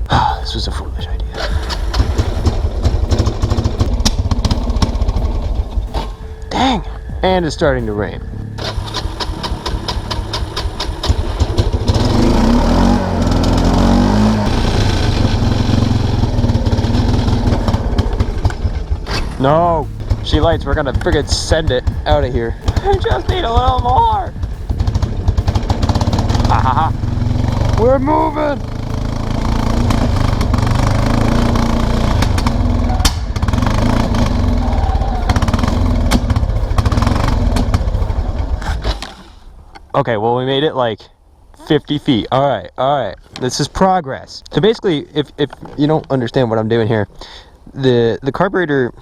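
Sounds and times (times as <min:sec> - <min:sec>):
atv engine running unevenly: 0:00.0 - 0:39.1.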